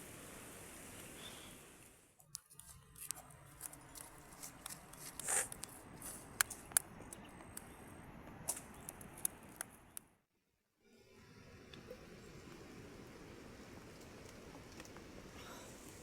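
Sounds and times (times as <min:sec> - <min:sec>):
steady rain: 0:00.0 - 0:02.1, 0:11.0 - 0:16.0
raindrops ticking on surface: 0:11.7 - 0:16.0.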